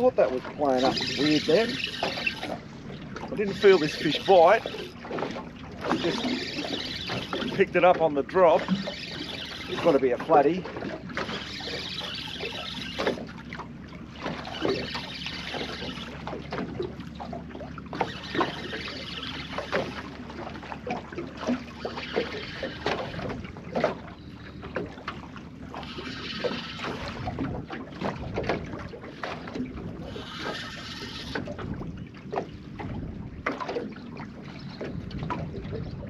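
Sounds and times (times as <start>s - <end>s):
water splashing around boat: 0.0s - 36.0s
wind buffeting microphone: 31.4s - 33.5s, 34.8s - 36.0s.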